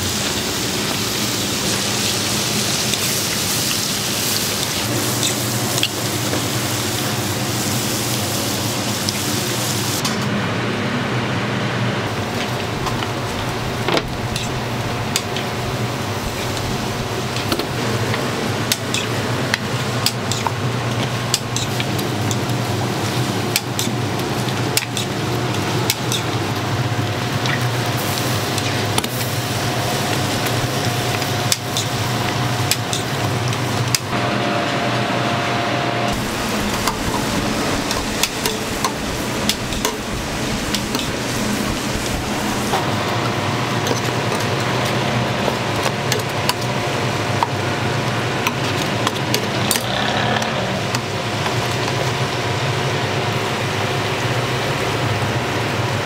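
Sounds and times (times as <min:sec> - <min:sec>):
food sizzling on a griddle: 0:00.0 - 0:10.0, 0:27.1 - 0:33.8, 0:36.2 - 0:42.8
constant low hum: 0:00.0 - 0:56.0.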